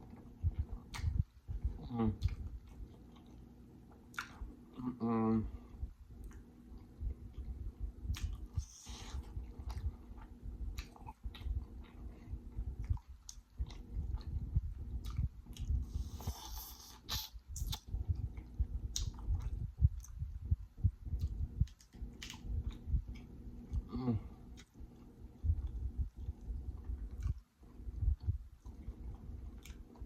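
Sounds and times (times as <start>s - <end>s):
close chewing with wet smacks: 0.0s - 4.8s, 6.1s - 30.0s
lip clicks: 17.0s - 18.0s, 18.9s - 20.2s.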